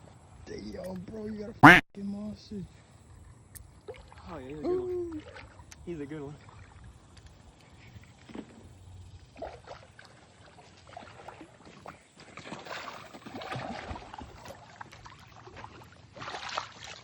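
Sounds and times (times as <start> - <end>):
water sloshing and splashing: 5.1 - 7.5, 9.2 - 17.0.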